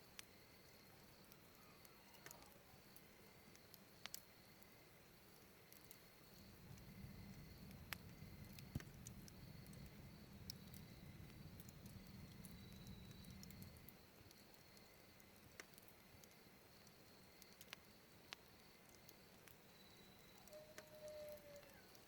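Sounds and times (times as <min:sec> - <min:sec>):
firewood crackling: 0:00.0 - 0:22.0
low rumble: 0:06.4 - 0:13.9.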